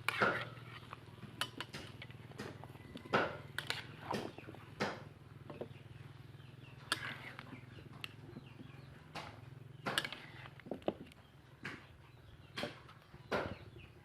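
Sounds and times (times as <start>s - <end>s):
metal spatula scraping pot: 0.0s - 4.5s, 6.8s - 8.2s, 9.9s - 11.2s.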